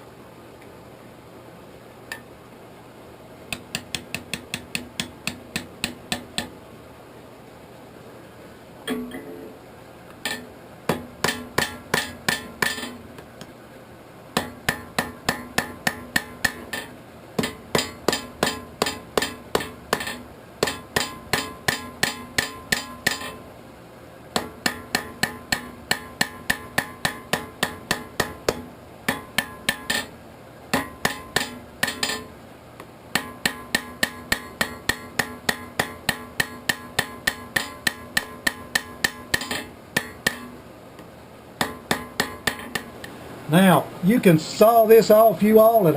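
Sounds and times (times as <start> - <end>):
hammer striking steel on anvil: 3.5 - 6.5, 8.9 - 9.5, 10.2 - 13.2, 14.4 - 23.4, 24.4 - 32.4, 33.1 - 40.6, 41.6 - 43.2
anvil ringing: 8.9 - 9.5, 10.2 - 13.1, 14.4 - 23.4, 24.4 - 32.4, 33.2 - 40.6, 41.6 - 43.0.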